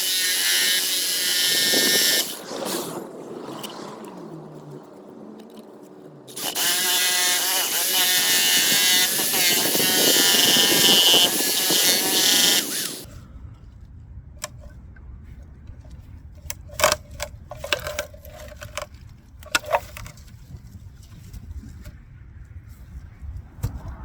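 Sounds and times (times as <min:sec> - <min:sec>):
loud motor running: 0:06.3 - 0:13.1.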